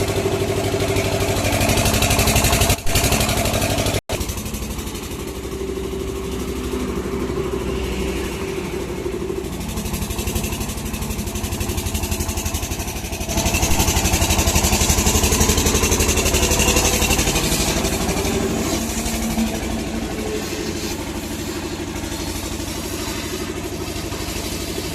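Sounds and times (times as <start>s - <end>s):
engine running steadily: 0.0s - 24.9s
hiss: 5.5s - 24.9s.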